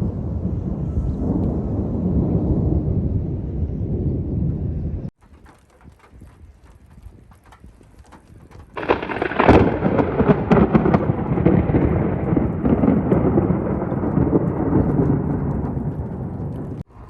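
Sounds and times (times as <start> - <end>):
thunderclap with rolling rumble: 0.0 - 17.0
rain falling: 5.2 - 17.0.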